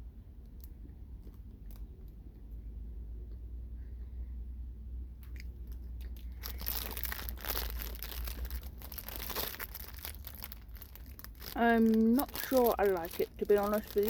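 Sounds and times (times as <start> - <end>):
steady low hum: 0.0 - 14.0
plastic wrapper crinkling: 5.6 - 14.0.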